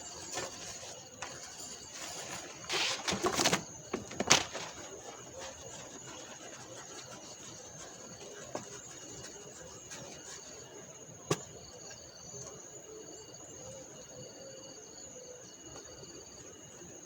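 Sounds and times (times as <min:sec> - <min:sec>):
insect high continuous trill: 0:00.0 - 0:17.0.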